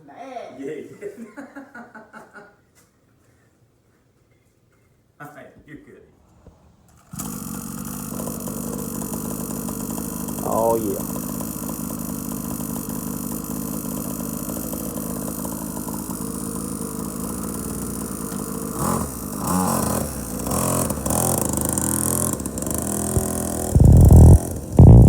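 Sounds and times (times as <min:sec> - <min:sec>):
small motorcycle engine revving: 0:07.0 - 0:25.0.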